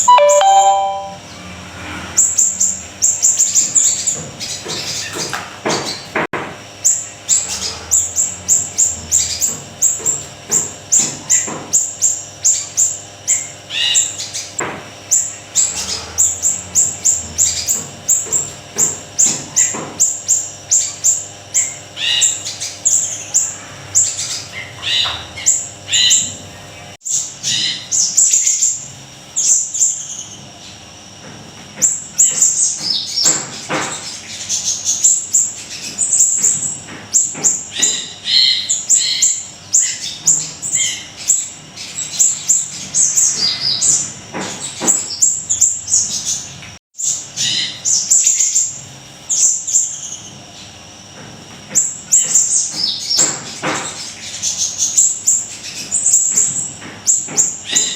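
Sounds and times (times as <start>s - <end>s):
small songbird singing chirps: 0.0s - 1.2s.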